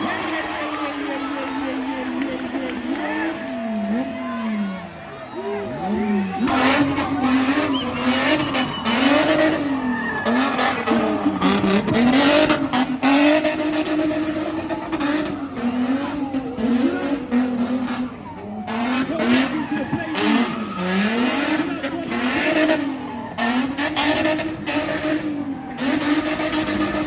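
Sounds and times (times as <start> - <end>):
car engine at high revs: 0.0 - 27.0.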